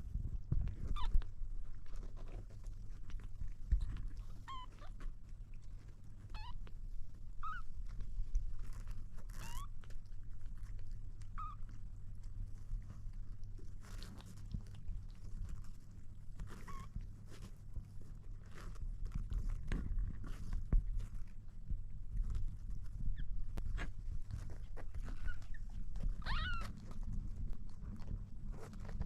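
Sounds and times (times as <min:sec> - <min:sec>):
kitten mewing: 0:25.1 - 0:27.0.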